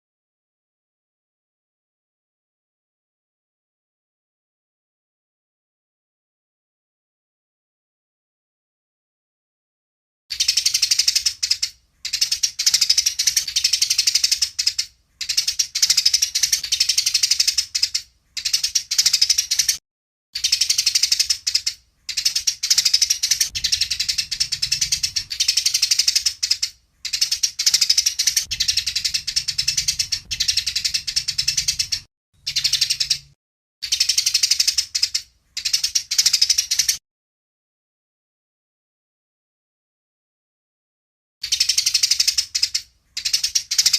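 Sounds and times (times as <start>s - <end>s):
sparrows chirping agitatedly: 10.3s - 19.8s, 20.4s - 37.0s, 41.4s - 43.9s.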